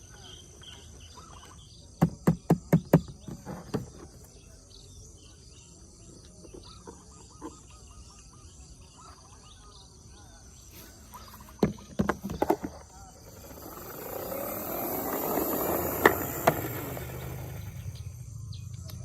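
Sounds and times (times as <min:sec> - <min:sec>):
birds chirping: 0:00.0 - 0:19.0
insects buzzing: 0:09.0 - 0:19.0.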